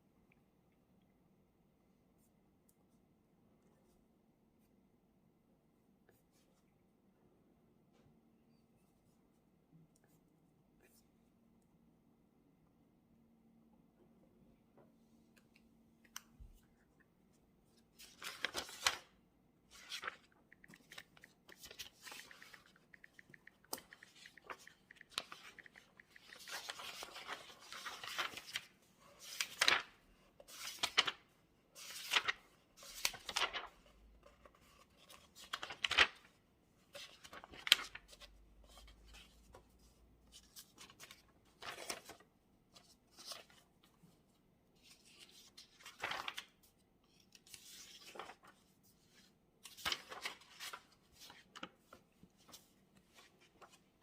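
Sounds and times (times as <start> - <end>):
paper rustling: 17.6 - 43.8, 44.8 - 54.0
small clicks and taps: 20.3 - 26.5.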